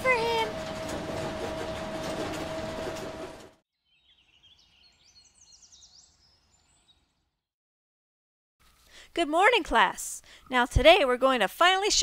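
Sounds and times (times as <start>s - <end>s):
bus engine humming: 0.0s - 3.6s.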